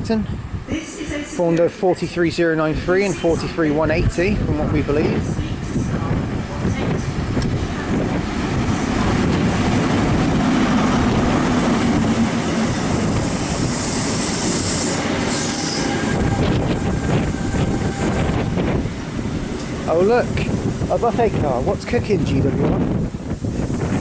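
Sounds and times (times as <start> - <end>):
diesel train engine droning: 0.3 - 24.0
wheels rumbling on rails: 2.0 - 24.0
high brake squeal: 13.6 - 16.3.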